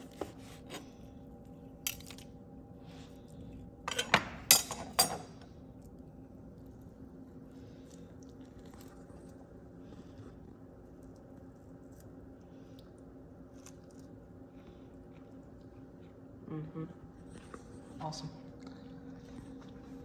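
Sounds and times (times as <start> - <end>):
faint hum: 0.0 - 20.0
dishes and utensils clinking: 3.9 - 5.4.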